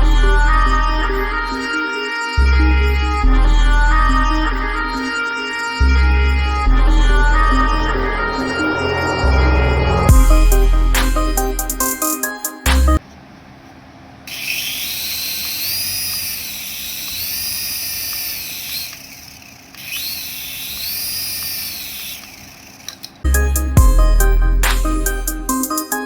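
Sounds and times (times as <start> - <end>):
toy electric motor whining: 14.3 - 23.3.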